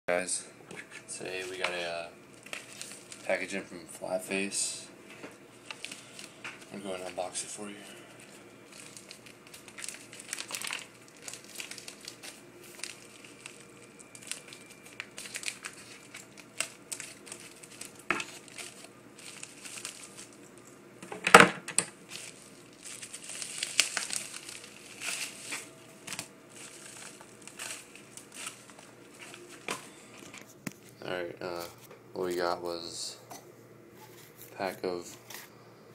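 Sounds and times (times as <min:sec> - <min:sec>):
packaging crinkling and rustling: 0:00.8 - 0:03.6, 0:05.6 - 0:20.7, 0:21.3 - 0:31.0
loud packaging crunch: 0:01.5 - 0:03.4, 0:05.6 - 0:07.4, 0:08.2 - 0:20.6, 0:22.0 - 0:30.5.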